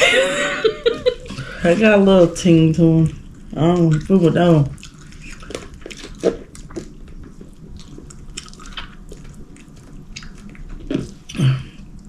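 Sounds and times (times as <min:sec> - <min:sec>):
chewing and lip-smacking: 0:03.2 - 0:12.0.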